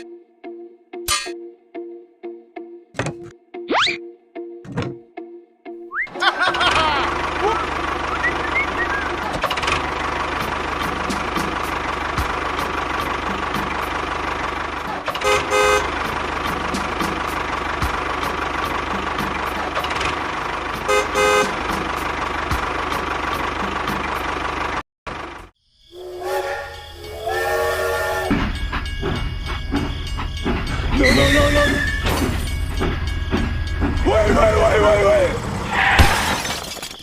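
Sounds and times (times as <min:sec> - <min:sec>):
engine running: 0:06.2 - 0:25.5
multi-toned whistle: 0:08.1 - 0:09.2, 0:25.9 - 0:28.4
vehicle horn beeping: 0:15.1 - 0:16.1, 0:20.8 - 0:21.8.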